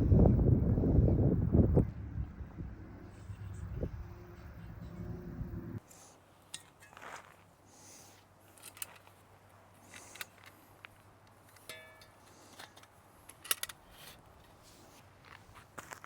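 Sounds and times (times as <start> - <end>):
wind rumble on microphone: 0.0 - 5.8.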